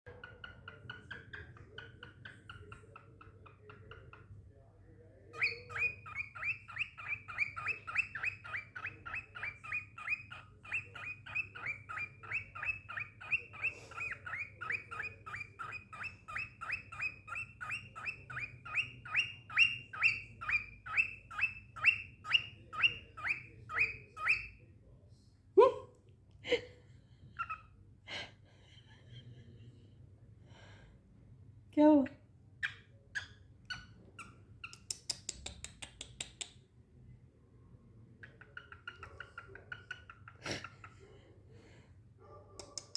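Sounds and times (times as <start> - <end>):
cockatiel calling: 5.3 - 24.6, 38.2 - 40.7.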